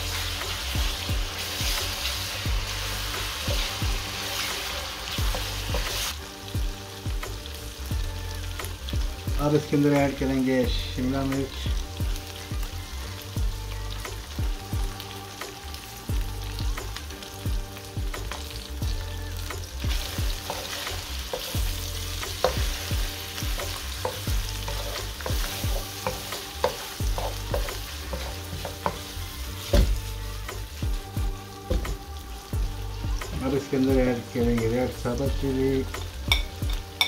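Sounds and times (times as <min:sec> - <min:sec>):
vegetables sizzling in a wok: 0:00.0 - 0:37.0
wooden spoon scraping a pan: 0:20.0 - 0:30.3.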